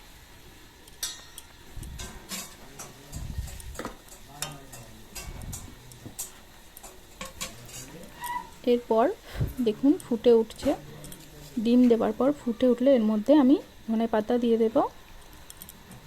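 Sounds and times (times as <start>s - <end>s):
utensil stirring and scraping pan: 2.0s - 9.0s.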